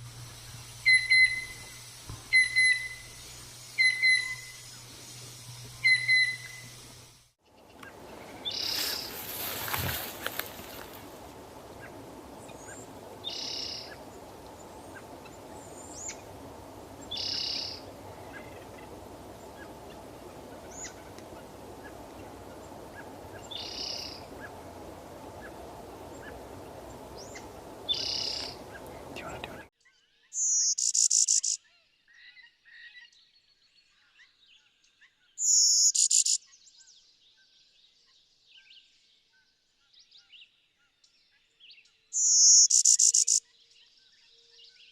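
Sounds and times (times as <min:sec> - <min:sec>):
background hiss: 0:00.0 - 0:29.7, 0:42.2 - 0:43.4.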